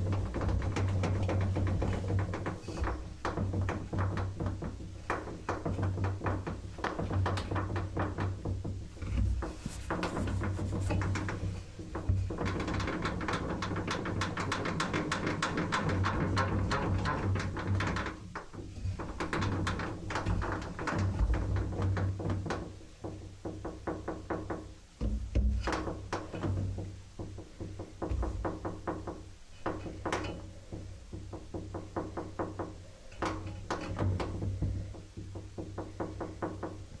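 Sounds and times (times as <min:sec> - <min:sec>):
washing machine humming: 0:00.0 - 0:21.4
knocks and clicks: 0:00.0 - 0:37.0.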